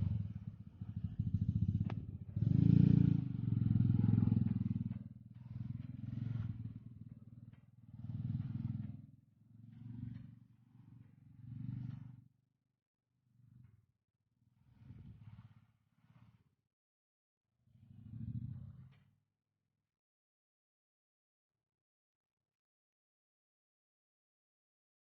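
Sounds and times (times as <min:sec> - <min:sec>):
small engine revving: 0:00.0 - 0:12.2.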